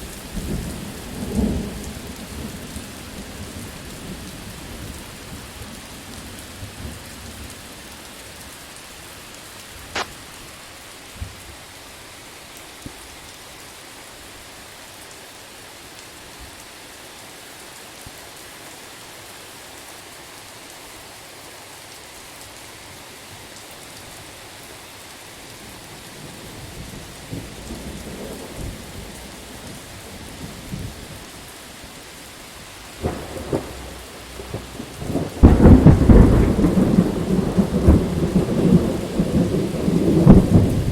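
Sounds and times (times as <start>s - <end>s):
heavy rain hiss: 0.0s - 40.9s
sharp crack: 9.9s - 10.2s
sharp thunderclaps: 33.0s - 40.9s
thunder rumbling: 33.0s - 40.9s.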